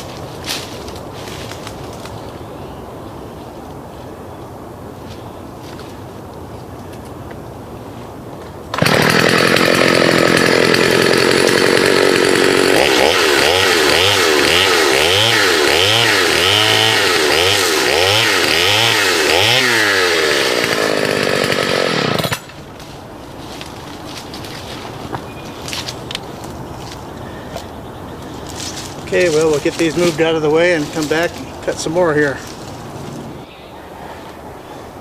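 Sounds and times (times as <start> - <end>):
chainsaw cutting wood: 8.7 - 22.8.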